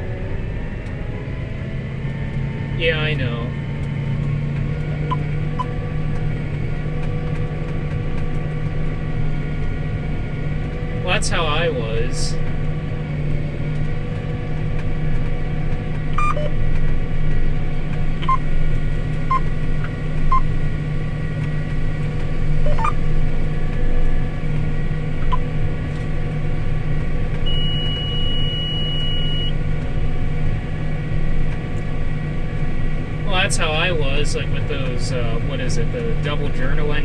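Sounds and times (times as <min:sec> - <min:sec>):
combine harvester low hum: 0:00.0 - 0:37.0
short electronic beeps: 0:16.2 - 0:16.6, 0:18.2 - 0:18.4, 0:19.3 - 0:19.5, 0:22.6 - 0:23.0, 0:27.5 - 0:29.6.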